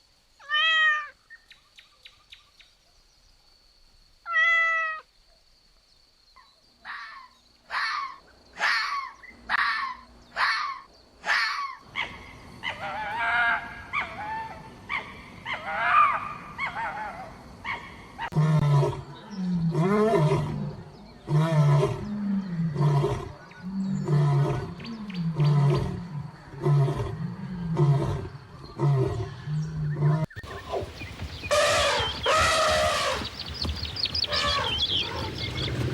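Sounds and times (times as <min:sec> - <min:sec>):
high mewing calls: 0:30.2 - 0:35.9.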